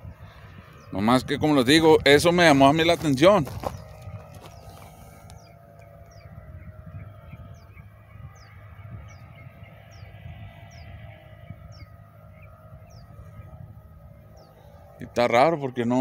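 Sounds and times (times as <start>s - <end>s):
wind rumbling on microphone: 0.0s - 16.0s
high downward bird chirp: 3.6s - 14.8s.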